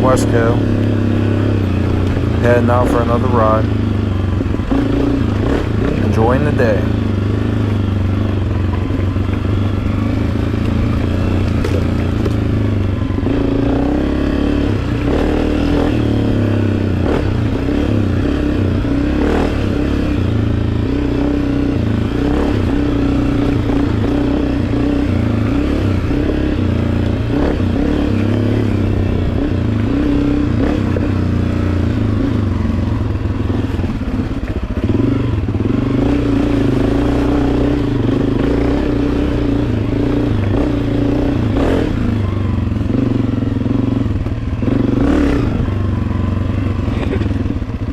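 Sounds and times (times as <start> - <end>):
dirt bike engine running: 0.0 - 47.9
knocks and clatter from bike: 10.6 - 13.4.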